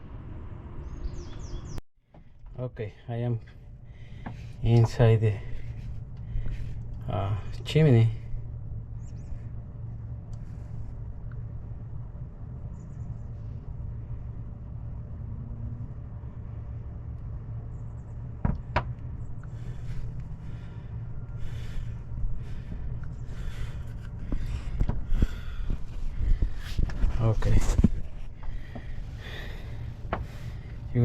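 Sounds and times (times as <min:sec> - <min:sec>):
steady low rumble: 0:00.0 - 0:31.0
scraping and rustling in wooden chase: 0:23.4 - 0:29.0.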